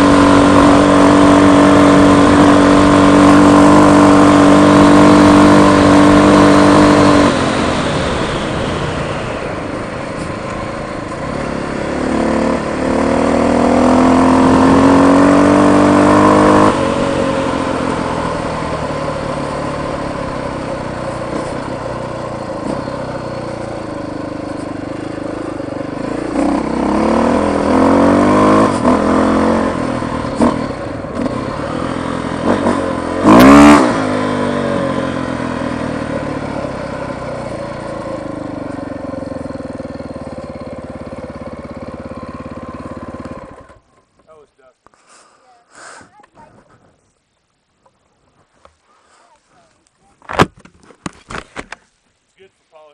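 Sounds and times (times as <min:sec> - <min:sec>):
motorcycle engine running: 0:00.0 - 0:44.4.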